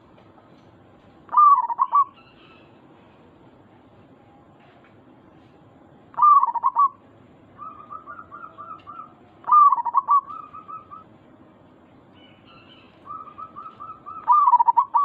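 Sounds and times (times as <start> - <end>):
dove cooing: 1.3 - 2.2, 6.2 - 7.0, 7.6 - 11.1, 13.0 - 15.0.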